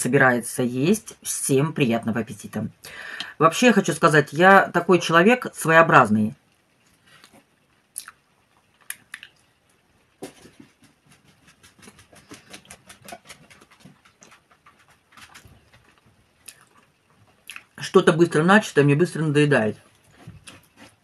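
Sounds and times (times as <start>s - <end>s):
wet chewing smacks: 7.2s - 9.5s, 11.8s - 17.8s.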